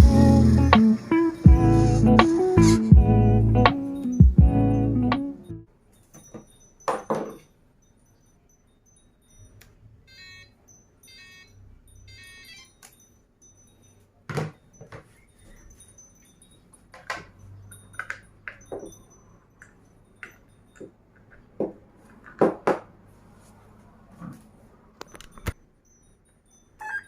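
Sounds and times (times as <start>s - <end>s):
small hard parts clinking: 5.8s - 10.0s, 10.6s - 23.3s.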